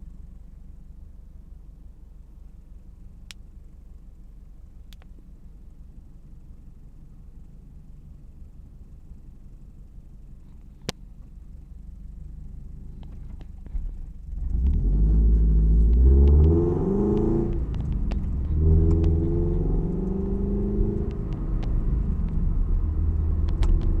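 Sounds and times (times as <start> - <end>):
car engine accelerating: 12.6 - 24.0.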